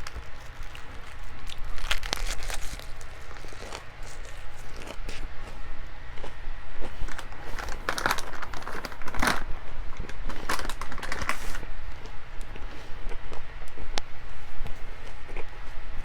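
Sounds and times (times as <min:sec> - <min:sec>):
crinkling and rustling: 0:00.0 - 0:05.3, 0:07.0 - 0:12.8
chewing: 0:00.0 - 0:08.5, 0:14.7 - 0:16.0
steady low hum: 0:00.0 - 0:16.0.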